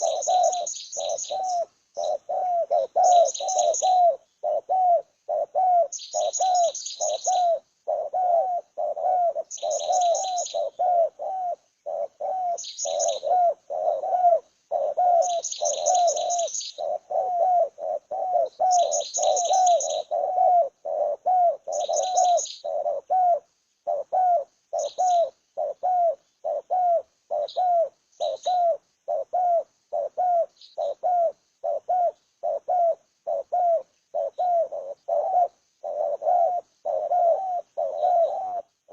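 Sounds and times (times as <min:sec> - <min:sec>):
birds high rapid chirping: 0:00.0 - 0:04.7, 0:05.3 - 0:17.6, 0:18.3 - 0:23.0, 0:24.7 - 0:25.7, 0:27.3 - 0:28.7, 0:30.5 - 0:31.1
bird low repeated call: 0:00.0 - 0:38.9.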